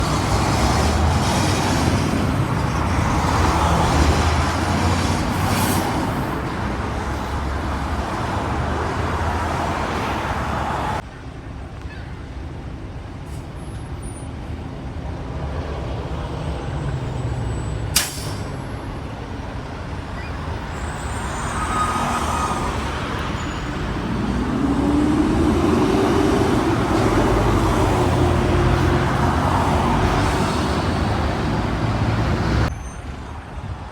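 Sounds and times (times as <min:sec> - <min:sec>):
road traffic passing: 0:00.0 - 0:33.9
engine note rising in pitch: 0:21.0 - 0:31.7.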